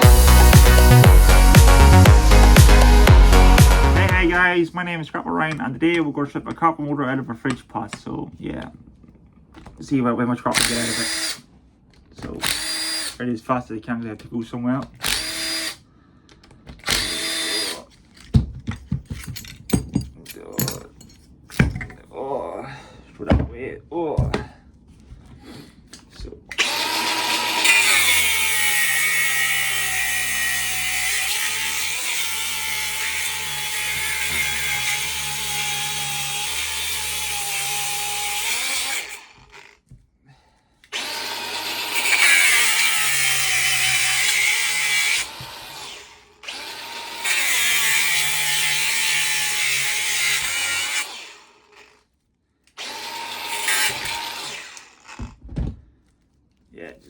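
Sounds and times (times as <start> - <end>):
pneumatic air hammer cutting metal: 12.4 - 13.2, 15.0 - 15.8, 16.8 - 17.9, 26.6 - 39.4, 40.9 - 51.4, 52.8 - 54.9.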